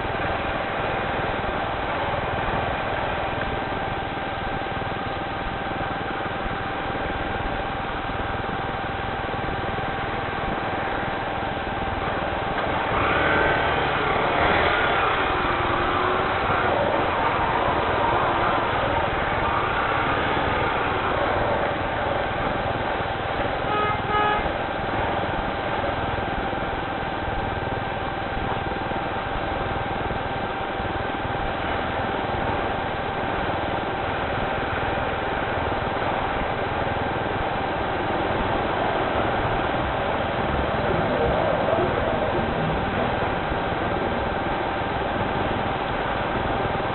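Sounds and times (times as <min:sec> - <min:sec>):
rain hiss: 0:00.0 - 0:46.9
vehicle engine passing: 0:12.3 - 0:24.0, 0:37.8 - 0:44.4.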